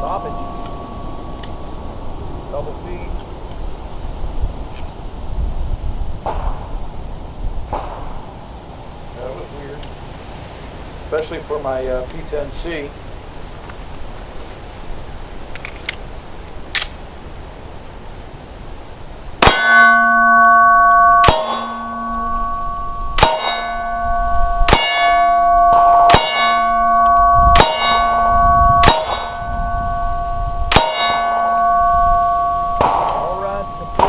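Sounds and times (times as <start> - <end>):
metallic ringing: 0.0 - 2.3, 19.4 - 34.0.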